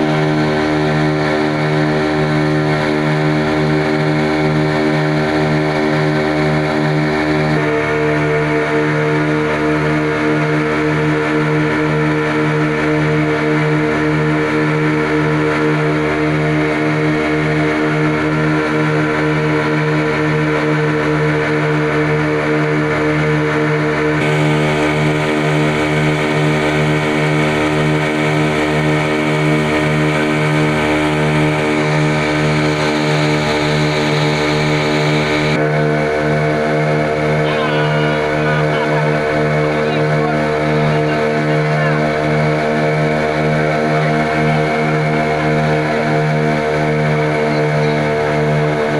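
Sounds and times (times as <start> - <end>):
boat engines droning: 0.0 - 48.9.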